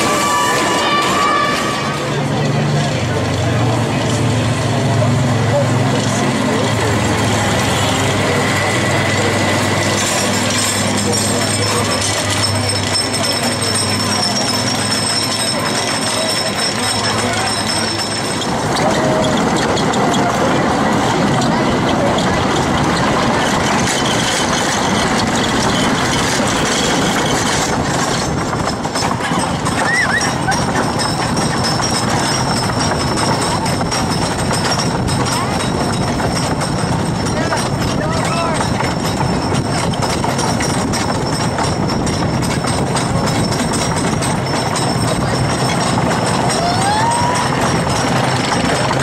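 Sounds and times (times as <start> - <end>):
roller coaster wheels rumbling: 0.0 - 49.0
person's rising voice: 46.4 - 47.6.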